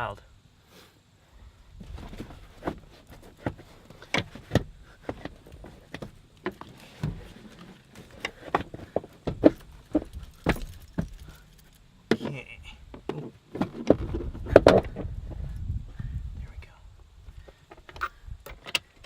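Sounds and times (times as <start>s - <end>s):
car seat frame clunking: 3.4s - 11.2s.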